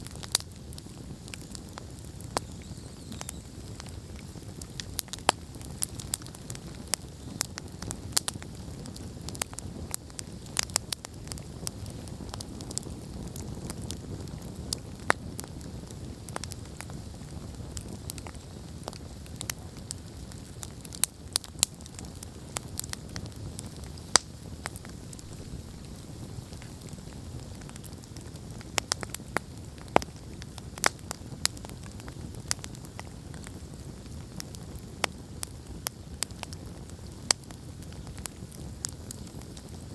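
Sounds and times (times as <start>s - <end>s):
burning logs crackling and popping: 0.0s - 39.9s
rumble of fire flames: 0.0s - 39.9s.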